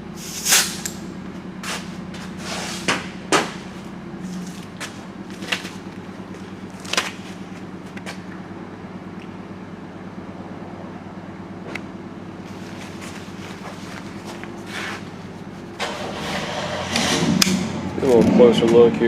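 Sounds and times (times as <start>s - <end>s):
steady low hum: 1.0s - 9.2s, 12.3s - 18.0s.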